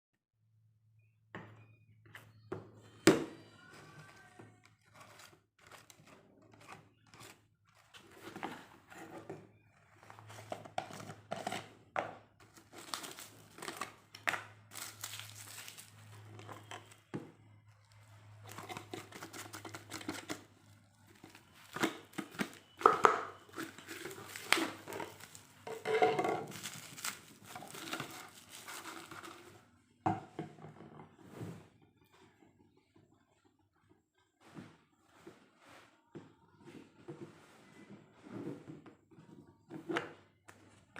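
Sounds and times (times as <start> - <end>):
wrapping crinkling and rustling: 12.5 - 17.0, 18.4 - 29.6
packaging tearing: 14.7 - 15.9, 26.5 - 29.4.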